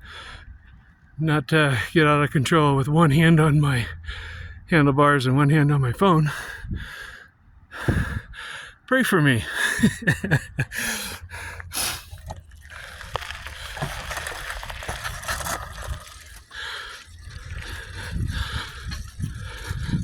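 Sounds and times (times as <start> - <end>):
low road rumble: 0.0 - 20.0
wind on microphone: 7.8 - 8.4, 17.1 - 20.0.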